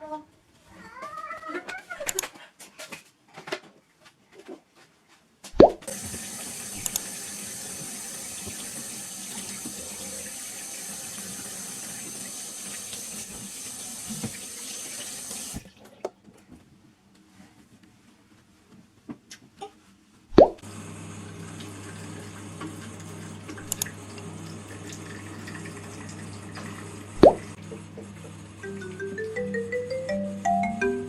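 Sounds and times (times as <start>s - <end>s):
water tap clack: 5.8s - 15.6s, 21.4s - 27.6s
water running into a sink: 5.8s - 15.7s, 21.2s - 27.6s.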